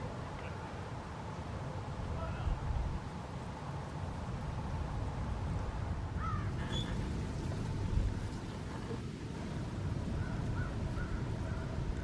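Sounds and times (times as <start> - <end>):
distant bird calls: 6.1 - 7.7, 10.0 - 11.9.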